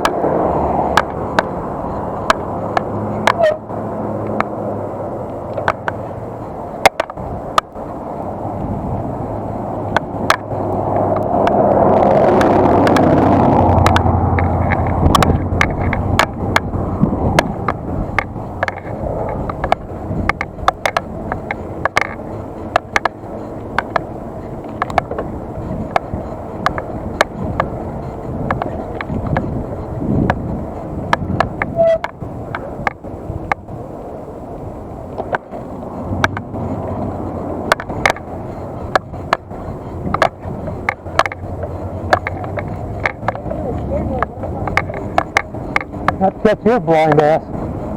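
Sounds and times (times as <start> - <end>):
car passing close by: 0.0 - 6.2, 9.2 - 18.2
bicycle clicking over bumps: 0.0 - 47.9
wind: 0.0 - 47.9.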